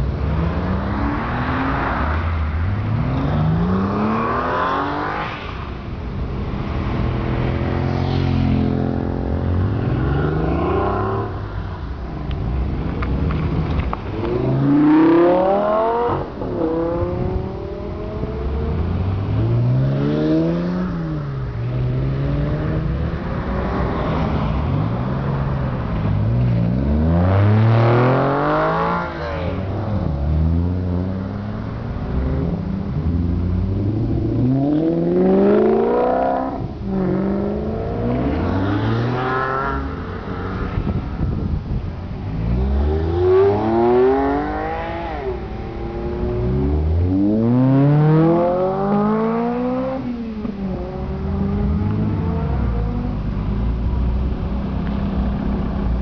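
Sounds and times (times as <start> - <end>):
sports car engines accelerating: 0.0 - 56.0.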